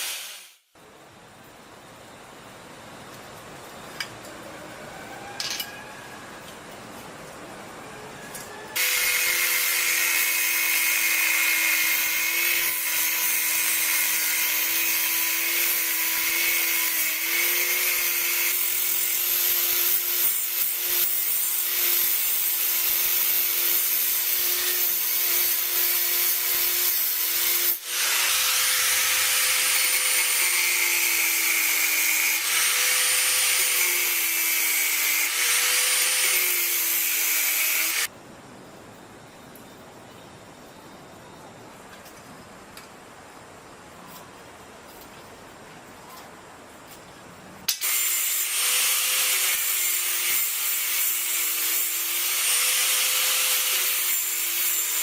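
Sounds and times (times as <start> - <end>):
power grinder grinding metal: 8.8 - 38.1, 47.7 - 55.0.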